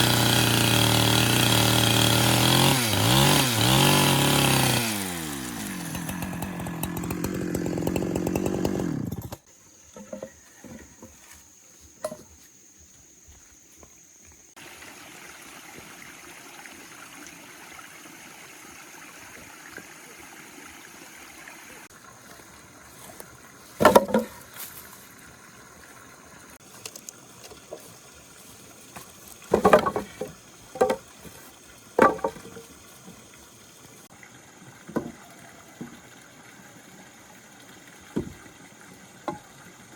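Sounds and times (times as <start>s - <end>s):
chainsaw engine idling: 0.0s - 9.4s.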